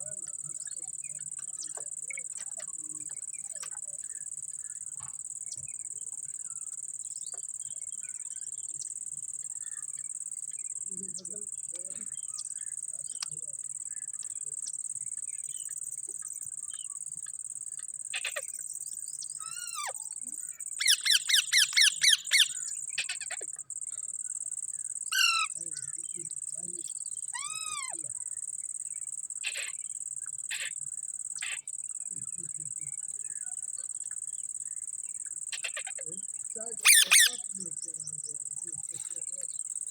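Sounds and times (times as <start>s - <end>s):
steady high-pitched hiss: 0.0s - 39.9s
parrot squawking: 19.4s - 20.0s, 20.8s - 23.4s, 25.1s - 25.5s, 27.4s - 28.0s, 29.4s - 29.8s, 30.5s - 30.7s, 36.8s - 37.4s.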